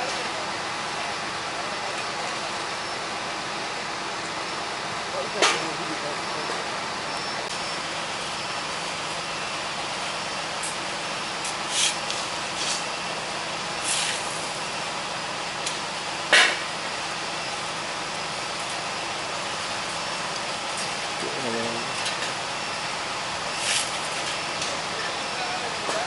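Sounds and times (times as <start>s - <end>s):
construction machinery running: 0.0s - 26.0s.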